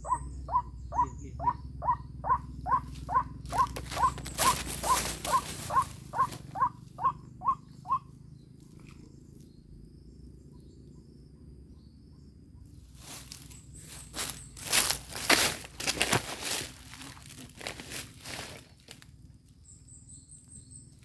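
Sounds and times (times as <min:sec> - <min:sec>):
bird calling hoarse notes: 0:00.0 - 0:09.5
rustling: 0:03.5 - 0:06.6.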